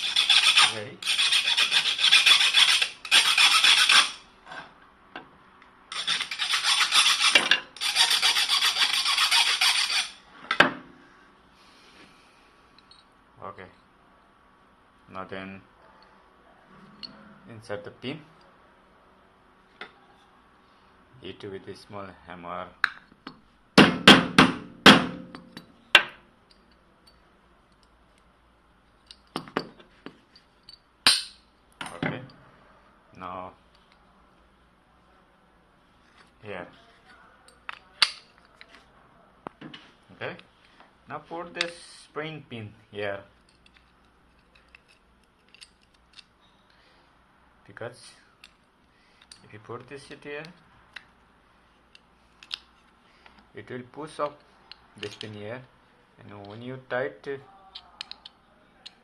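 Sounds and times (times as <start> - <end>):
hand file rasping on metal: 0.0 - 4.2, 6.0 - 10.2
hammer striking metal: 23.8 - 26.1.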